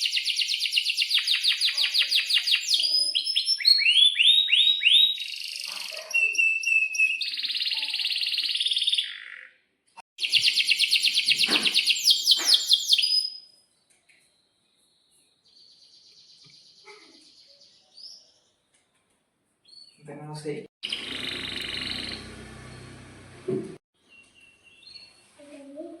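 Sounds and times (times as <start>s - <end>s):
canary singing rolling trills: 0.0s - 9.6s, 10.2s - 13.5s, 20.8s - 23.2s.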